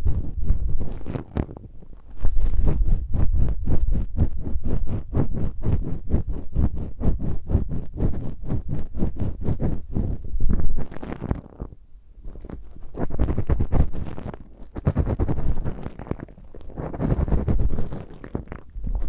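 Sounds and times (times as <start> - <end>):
ear pick scratching microphone: 0.0 - 19.0.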